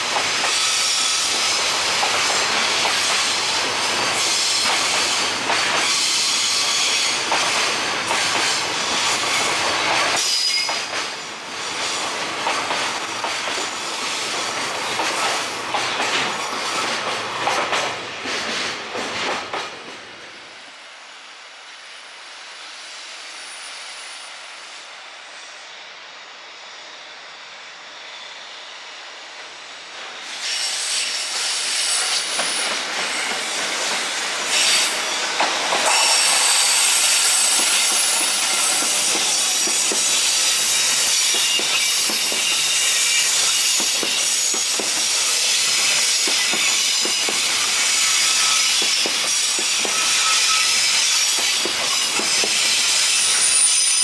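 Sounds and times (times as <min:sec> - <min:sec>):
freight train rolling past: 0:00.0 - 0:54.0
wheels clacking over rail joints: 0:32.0 - 0:47.6
high-pitched wheel squeal: 0:34.5 - 0:44.6, 0:47.1 - 0:54.0.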